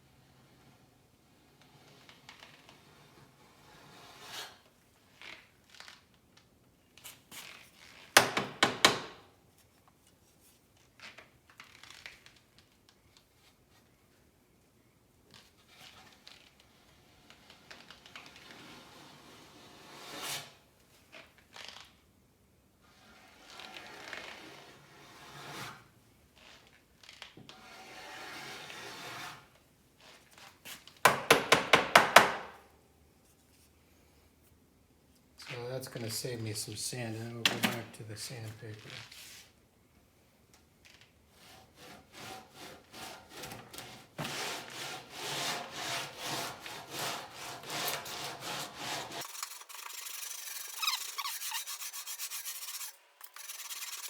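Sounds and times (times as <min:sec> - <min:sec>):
file rasping body filler: 0:41.4 - 0:54.0.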